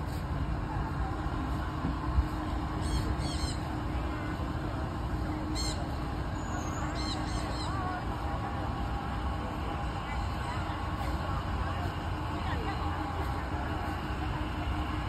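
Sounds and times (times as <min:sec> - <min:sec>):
low hum of city traffic: 0:00.0 - 0:15.0
birds chirping: 0:05.5 - 0:07.9.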